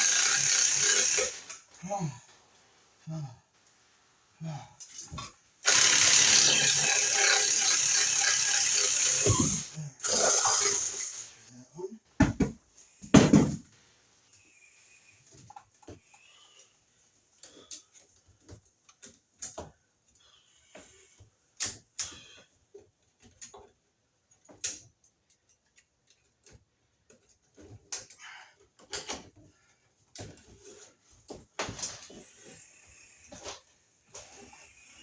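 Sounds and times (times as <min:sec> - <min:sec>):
tools clicking on electrical wire: 0:24.3 - 0:28.2.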